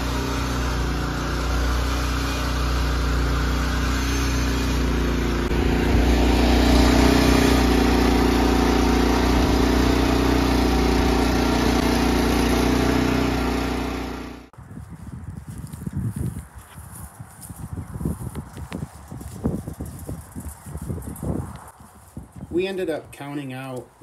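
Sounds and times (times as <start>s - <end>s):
gasoline engine running under load: 0.0s - 14.6s.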